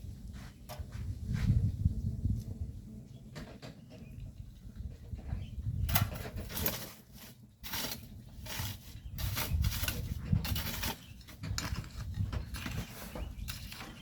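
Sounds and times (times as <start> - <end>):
shovels scraping sand: 5.9 - 14.0.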